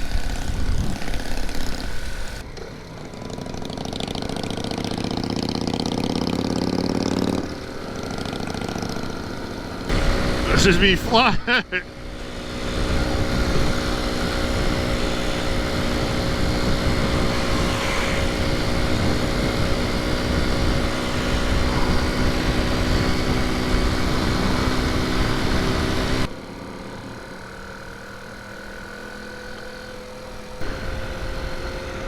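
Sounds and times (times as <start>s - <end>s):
wind rush on microphone: 0.0s - 2.0s, 12.1s - 26.3s
small motorcycle engine running: 0.0s - 10.9s, 11.8s - 32.0s.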